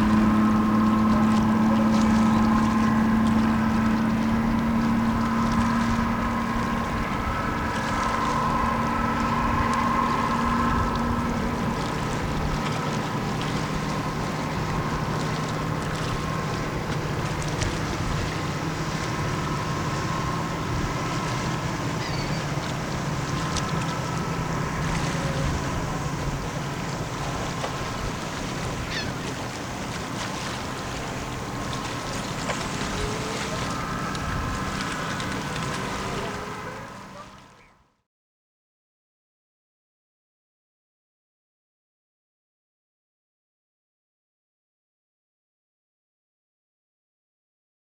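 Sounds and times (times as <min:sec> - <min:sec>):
diesel engine humming: 0:00.0 - 0:37.6
wind rumbling on microphone: 0:00.0 - 0:37.7.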